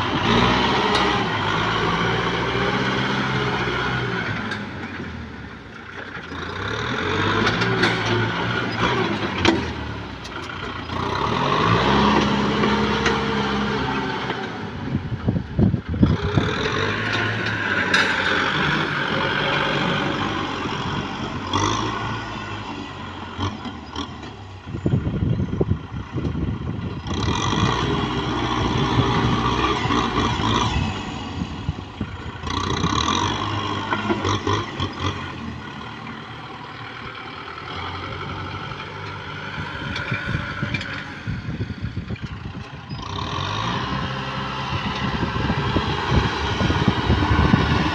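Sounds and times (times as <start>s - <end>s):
tractor diesel engine running: 0.0s - 47.9s
clanks and knocks: 16.7s - 20.2s.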